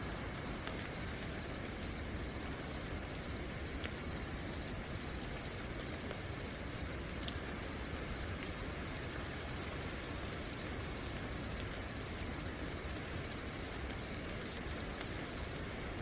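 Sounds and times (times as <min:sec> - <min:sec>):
cricket trilling: 0:00.0 - 0:16.0
faint water drips: 0:00.0 - 0:16.0
steady rain hiss: 0:00.0 - 0:16.0.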